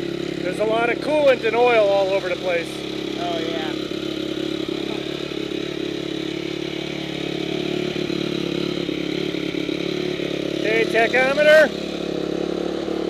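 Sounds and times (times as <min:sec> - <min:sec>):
single-cylinder engine running: 0:00.0 - 0:13.0.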